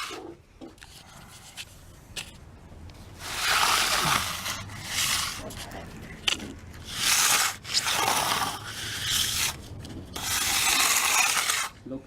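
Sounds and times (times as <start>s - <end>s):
tool scraping wet concrete: 0.0s - 0.4s, 3.2s - 11.8s.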